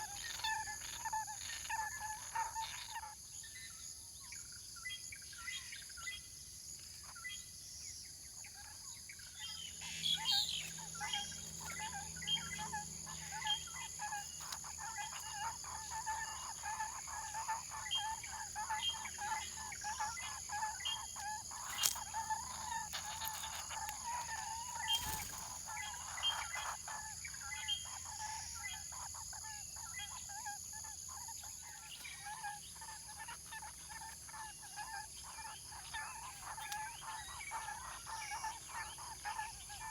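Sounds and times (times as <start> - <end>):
high-pitched insect drone: 9.8 - 28.9.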